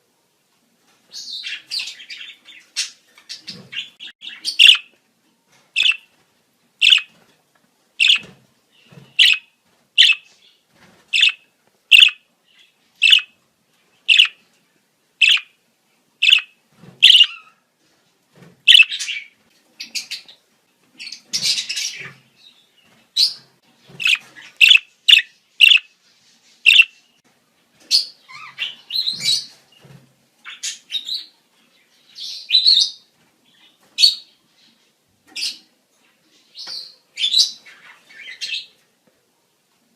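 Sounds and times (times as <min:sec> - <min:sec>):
budgerigar chirps: 0:04.2 - 0:04.9, 0:05.8 - 0:06.0, 0:06.8 - 0:07.1, 0:08.0 - 0:08.2, 0:09.2 - 0:10.3, 0:11.2 - 0:12.2, 0:13.0 - 0:13.3, 0:14.1 - 0:14.4, 0:15.2 - 0:15.5, 0:16.2 - 0:17.4, 0:18.7 - 0:19.2, 0:24.0 - 0:25.9, 0:26.7 - 0:26.9
budgerigar chatter: 0:04.5 - 0:04.8, 0:11.2 - 0:12.2, 0:24.0 - 0:25.8.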